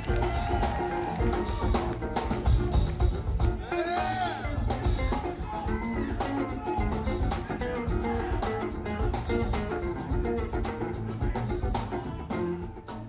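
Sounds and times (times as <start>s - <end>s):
music with drums and steady beat: 0.0s - 13.0s.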